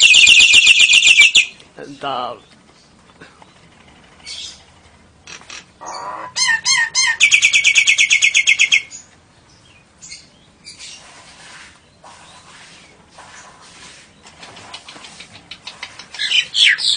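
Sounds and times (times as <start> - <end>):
songbird calls: 2.4 - 11.1, 13.4 - 16.9.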